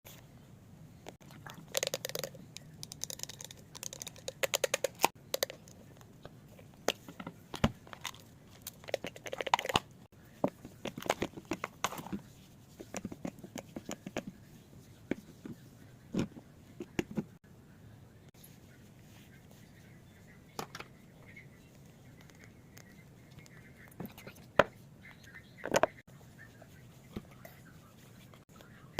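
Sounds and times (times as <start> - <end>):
small objects clicking and tapping: 1.6 - 5.8.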